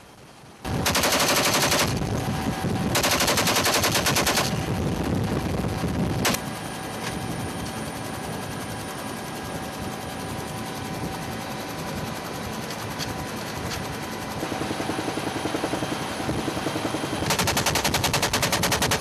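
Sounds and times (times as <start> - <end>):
helicopter running: 0.0 - 19.0
machine gun bursts: 0.8 - 2.0, 3.0 - 4.6, 17.2 - 19.0.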